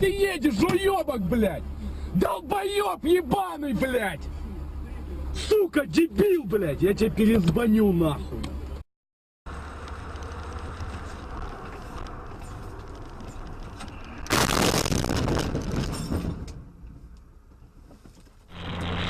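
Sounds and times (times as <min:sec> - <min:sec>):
road and engine rumble: 0:00.0 - 0:08.9, 0:09.5 - 0:19.0
loud harsh burst of noise: 0:18.5 - 0:19.0.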